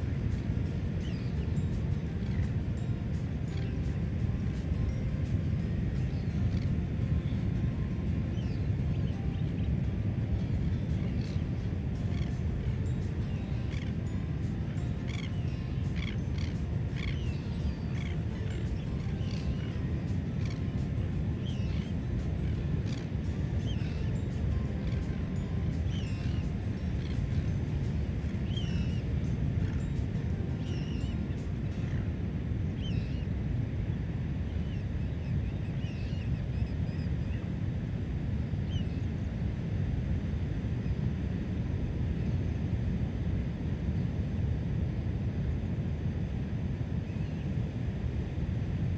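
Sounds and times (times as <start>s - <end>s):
steady low rumble: 0.0s - 48.9s
birds chirping: 0.4s - 5.0s, 10.7s - 32.0s, 32.8s - 33.3s.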